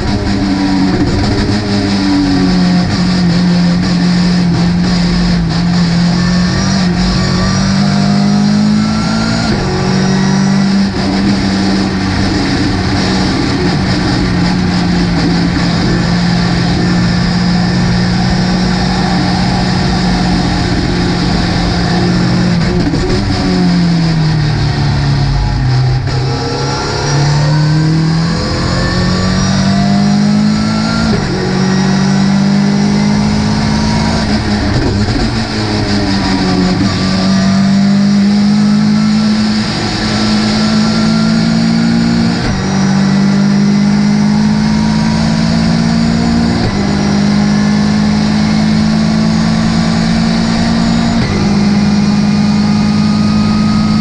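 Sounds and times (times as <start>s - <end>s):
gear changes: 0.0s - 42.9s
race car engine revving: 0.0s - 54.0s.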